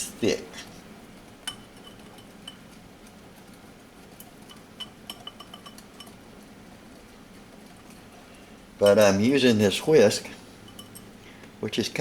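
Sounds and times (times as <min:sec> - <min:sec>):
whisk clinking against a bowl: 0:01.5 - 0:02.7, 0:04.2 - 0:06.2, 0:08.8 - 0:09.8, 0:10.6 - 0:11.1.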